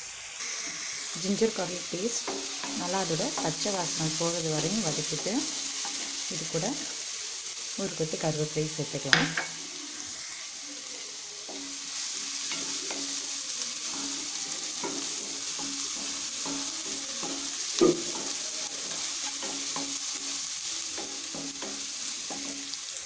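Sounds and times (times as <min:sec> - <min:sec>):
onion sizzling in hot oil: 0:00.0 - 0:23.0
utensil scraping and tapping pan: 0:02.2 - 0:03.7, 0:09.1 - 0:09.6, 0:12.4 - 0:22.8.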